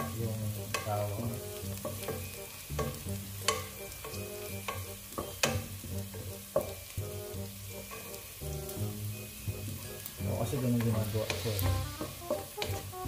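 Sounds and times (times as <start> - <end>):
onion sizzling in hot oil: 0.0 - 13.0
utensil scraping pan: 10.7 - 13.0.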